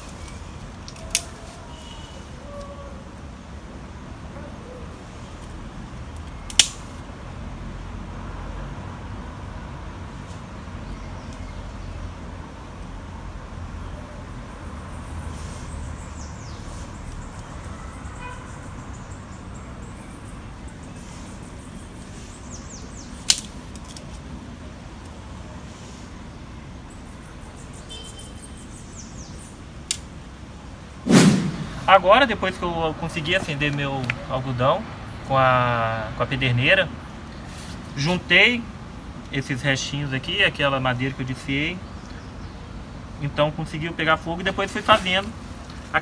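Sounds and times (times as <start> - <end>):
sharp fire cracks: 31.0 - 32.1
steady low rumble: 31.1 - 32.2.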